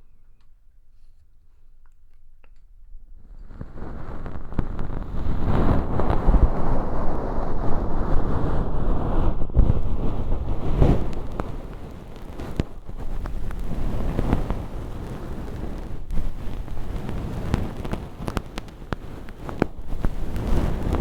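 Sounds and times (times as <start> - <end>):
crackling fake earwax: 1.8 - 21.0
low rubbing rumble: 3.3 - 21.0.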